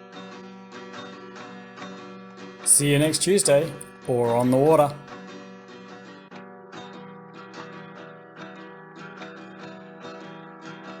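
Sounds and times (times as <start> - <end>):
acoustic guitar strumming chords: 2.7 - 5.2.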